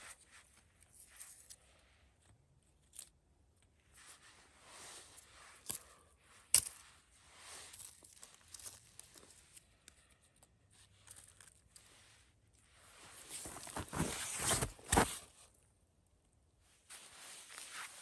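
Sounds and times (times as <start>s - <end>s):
soft rustling and scraping: 3.8s - 15.6s, 16.7s - 18.0s.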